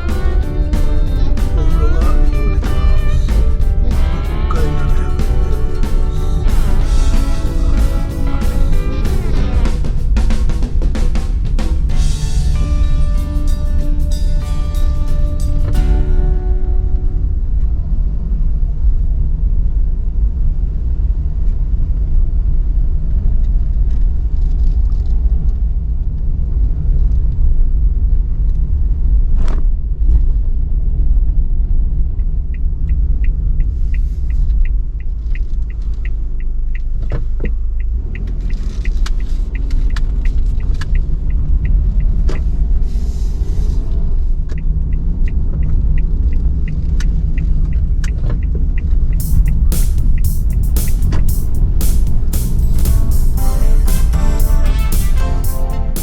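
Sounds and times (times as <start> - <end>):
van engine and road rumble: 0.0 - 53.3
turn signal ticking: 32.5 - 42.9, 43.9 - 56.0.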